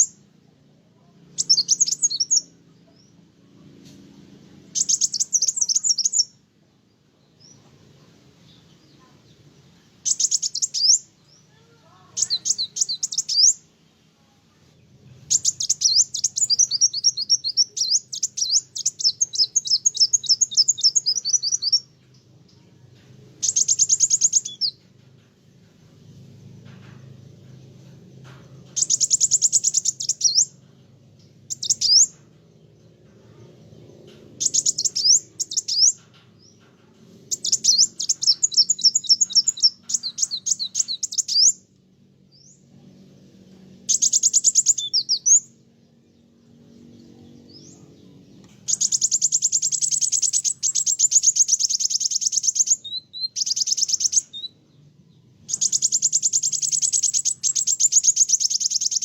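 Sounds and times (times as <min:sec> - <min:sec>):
bird chattering trills: 0:01.4 - 0:02.5, 0:04.7 - 0:06.3, 0:10.0 - 0:13.6, 0:15.2 - 0:21.9, 0:23.4 - 0:24.8, 0:28.7 - 0:30.6, 0:31.5 - 0:32.2, 0:34.1 - 0:36.2, 0:37.2 - 0:41.6, 0:43.8 - 0:45.5, 0:47.2 - 0:54.6, 0:55.5 - 0:59.0.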